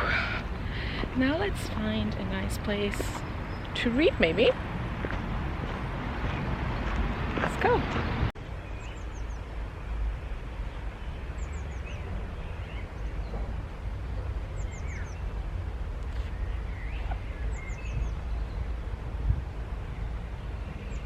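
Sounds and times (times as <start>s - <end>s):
low rumble: 0.0s - 21.0s
bird chirps: 14.5s - 15.3s, 16.1s - 18.7s.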